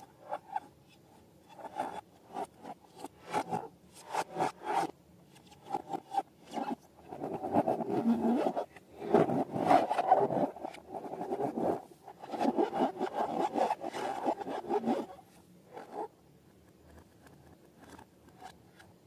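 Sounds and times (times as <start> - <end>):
rubbing and scraping of balloons: 5.7 - 16.1.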